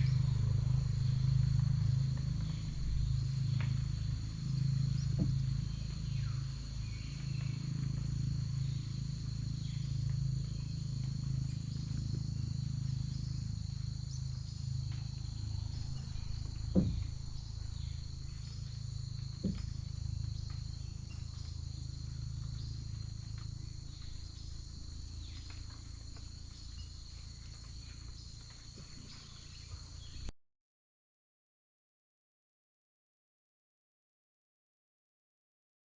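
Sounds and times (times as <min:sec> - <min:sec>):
insects buzzing: 0:00.0 - 0:30.3
low rumble: 0:00.0 - 0:30.3
short knocks: 0:15.7 - 0:21.4.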